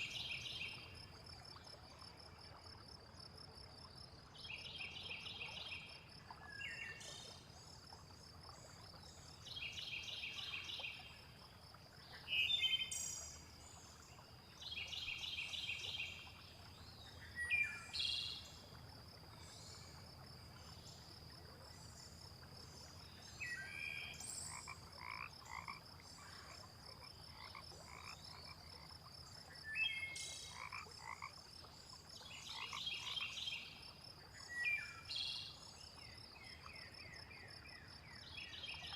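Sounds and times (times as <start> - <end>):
faint rush of water: 0.0 - 38.9
frogs calling in pulsed bursts: 24.0 - 34.4.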